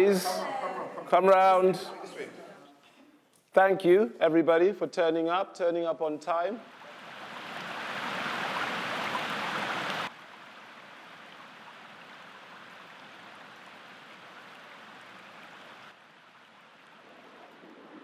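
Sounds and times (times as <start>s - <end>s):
stream flowing: 6.6s - 18.0s.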